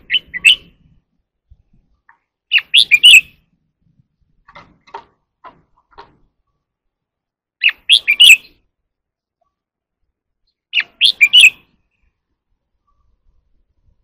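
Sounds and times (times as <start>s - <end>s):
bird singing whistled notes: 0.0s - 0.9s, 2.5s - 3.5s, 7.6s - 8.6s, 10.4s - 12.1s
faint soft bird notes: 5.7s - 14.0s.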